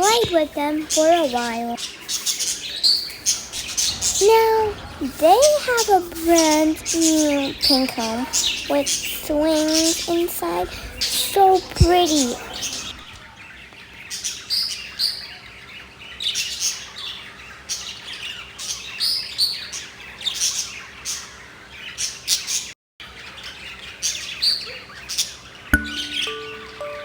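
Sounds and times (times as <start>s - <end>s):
parrots chirping and squawking: 0.0s - 13.2s.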